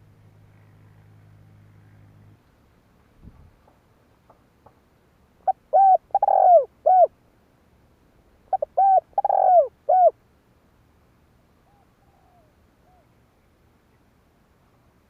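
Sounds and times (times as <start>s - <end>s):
dove cooing: 5.4s - 7.1s, 8.5s - 10.2s, 11.6s - 13.1s.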